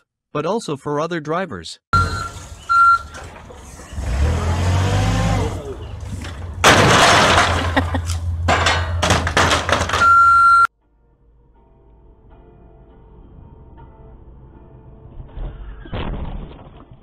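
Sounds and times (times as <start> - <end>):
steady electronic beep: 2.0 - 3.1
clattering debris: 2.0 - 4.8, 5.5 - 10.7
low vehicle rumble: 2.0 - 10.7
car crash impact: 5.4 - 10.4
glass breaking: 6.2 - 10.2.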